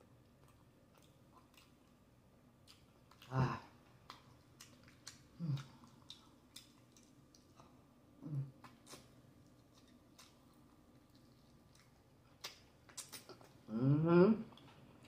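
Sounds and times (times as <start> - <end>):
mouth smacks while chewing: 4.0 - 7.7, 8.6 - 13.6
person humming: 13.7 - 14.5.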